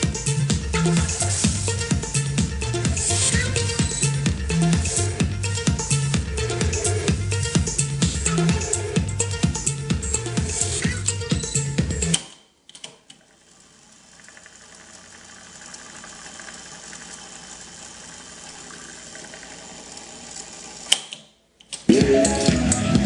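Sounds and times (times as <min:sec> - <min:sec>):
tape motor whirr: 0:13.3 - 0:21.0.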